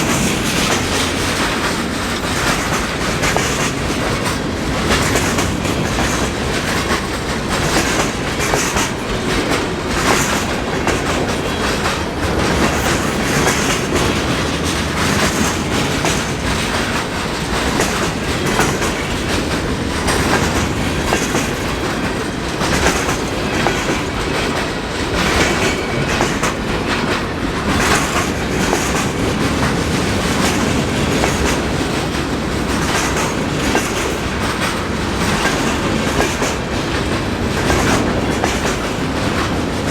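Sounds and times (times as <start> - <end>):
wheels clacking on rails: 0.0 - 39.9.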